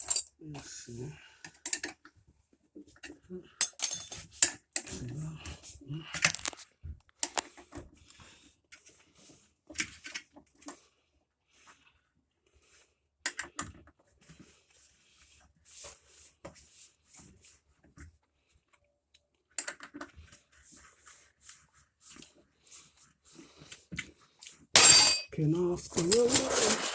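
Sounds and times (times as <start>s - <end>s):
hand tools and metal parts clattering: 0.0s - 0.3s, 3.6s - 4.3s, 24.4s - 26.9s.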